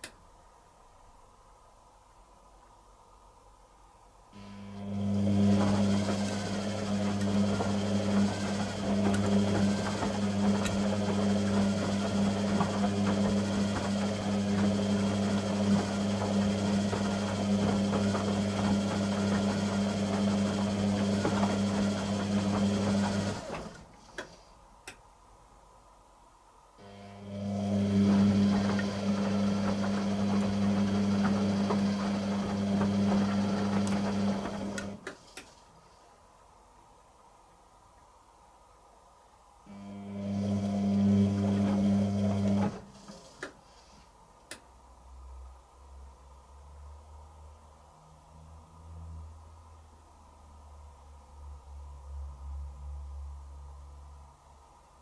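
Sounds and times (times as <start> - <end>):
washing machine motor hum: 4.4 - 24.2, 26.8 - 35.1, 39.7 - 43.7.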